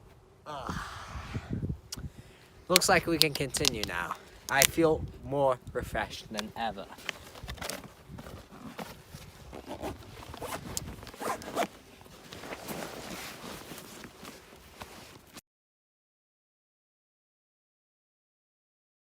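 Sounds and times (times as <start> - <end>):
rustling and scraping: 6.0 - 15.4
zipper-like rasps: 8.3 - 14.4.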